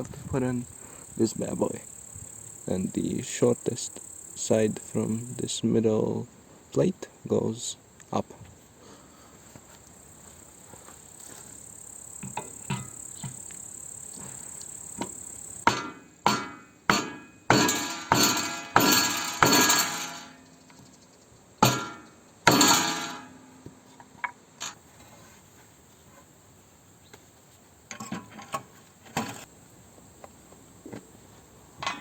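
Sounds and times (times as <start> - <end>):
hammer striking metal: 15.6 - 20.4, 21.6 - 23.5.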